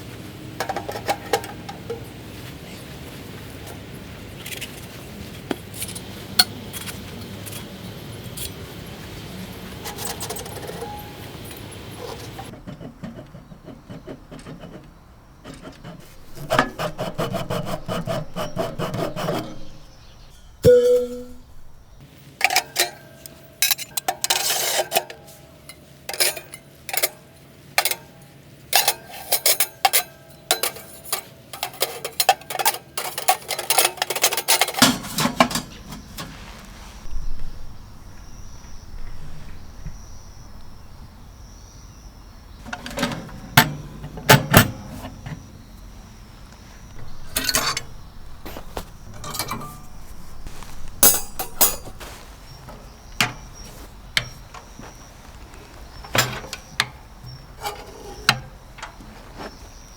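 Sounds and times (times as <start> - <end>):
rubbing and scraping: 12.0 - 22.0, 33.1 - 41.0, 46.6 - 59.9
hard objects clinking: 46.9 - 59.0.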